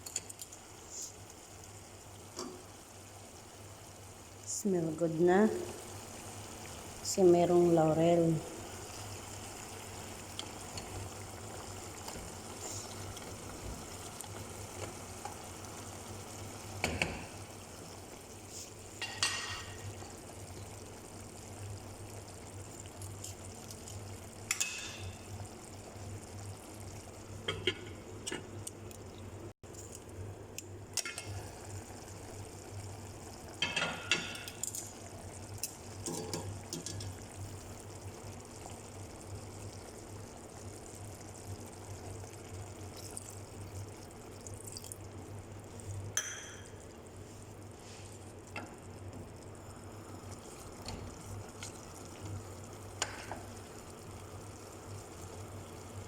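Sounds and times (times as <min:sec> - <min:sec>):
food sizzling in a pan: 0:00.0 - 0:28.2, 0:31.0 - 0:56.0.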